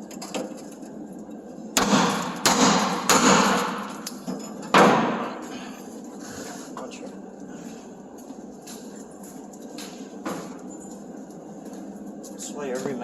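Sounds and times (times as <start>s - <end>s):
hammer striking steel chisel: 1.8s - 5.2s.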